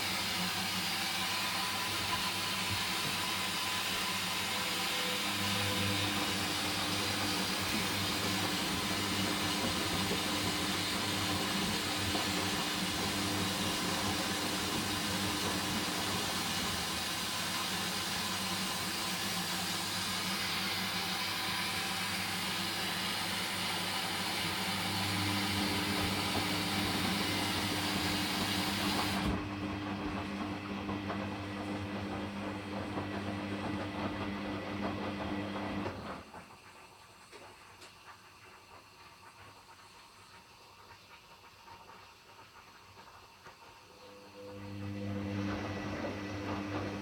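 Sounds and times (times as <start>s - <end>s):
washing machine hiss: 0.0s - 31.7s
washing machine hum: 0.0s - 47.0s.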